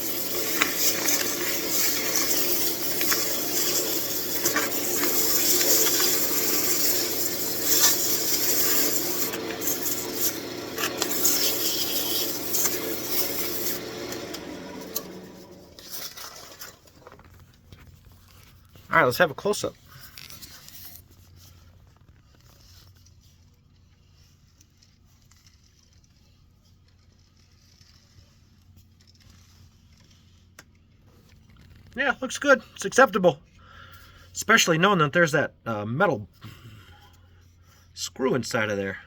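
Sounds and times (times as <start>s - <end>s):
lathe motor hum: 0.0s - 16.7s
sandpaper rubbing spinning wood: 0.0s - 16.7s, 22.6s - 30.5s.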